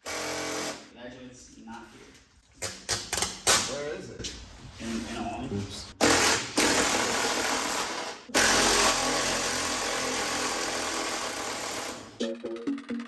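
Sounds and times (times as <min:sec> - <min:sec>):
power tool motor running: 0:00.0 - 0:00.8, 0:06.0 - 0:12.2.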